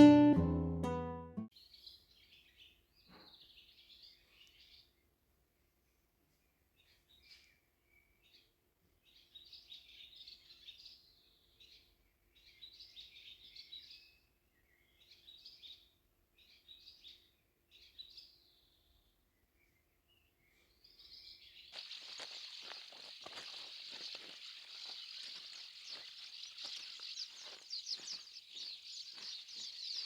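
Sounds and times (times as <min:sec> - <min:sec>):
birds chirping: 0:06.8 - 0:30.0.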